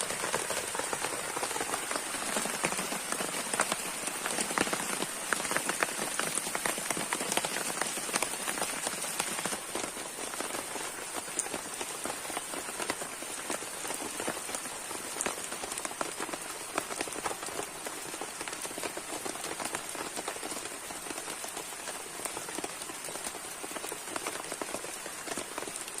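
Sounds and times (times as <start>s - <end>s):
rain on a shelter: 0.0s - 26.0s.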